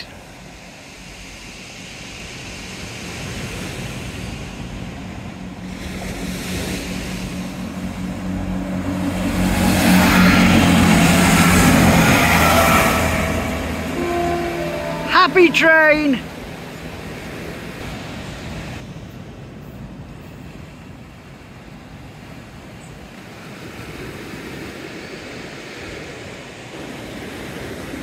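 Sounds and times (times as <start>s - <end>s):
train engine hum: 0.0s - 24.6s
train wheel noise: 1.9s - 18.0s.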